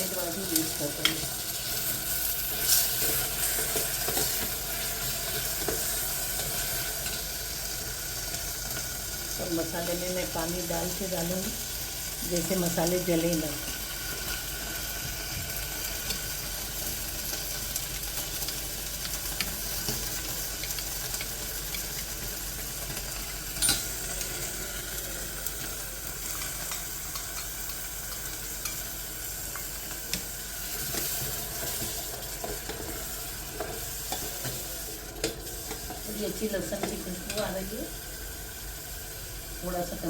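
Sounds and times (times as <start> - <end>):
masala sizzling in oil: 0.0 - 40.0
spoon stirring and scraping: 1.0 - 7.2, 26.3 - 36.1.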